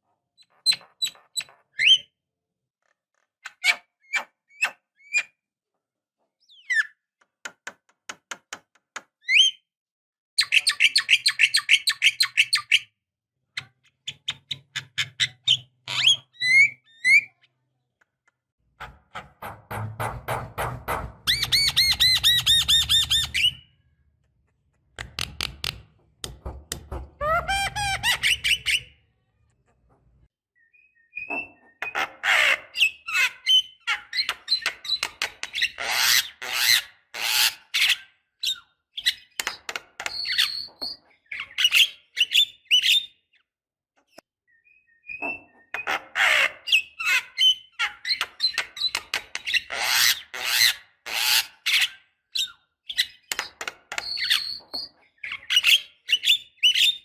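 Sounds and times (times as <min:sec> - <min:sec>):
myna bird singing: 0:44.5 - 0:45.9.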